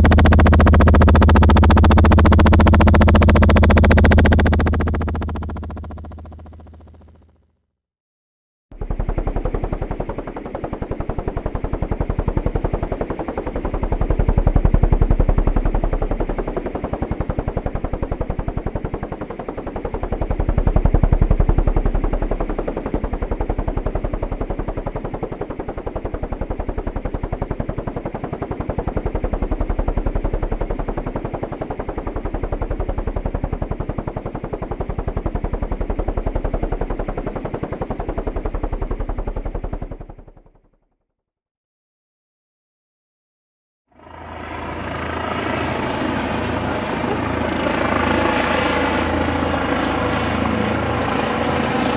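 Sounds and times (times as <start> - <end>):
high whine: 0.0 - 7.0, 44.1 - 51.9
helicopter rotor chopping: 0.0 - 7.2, 8.9 - 40.4, 44.0 - 51.9.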